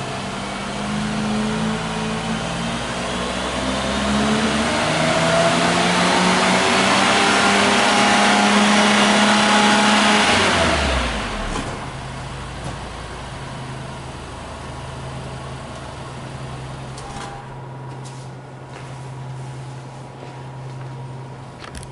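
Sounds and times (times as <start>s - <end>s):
car engine revving then idling: 0.0s - 17.0s.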